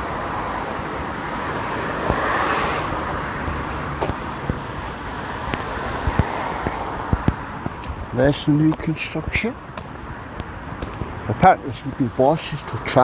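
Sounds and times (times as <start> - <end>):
road traffic rushing: 0.0 - 13.0
vehicle passing: 0.0 - 13.0.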